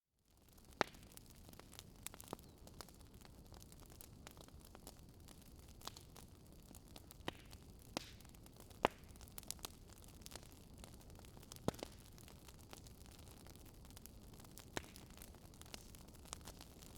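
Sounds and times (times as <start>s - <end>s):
fire crackling and popping: 0.3s - 16.9s.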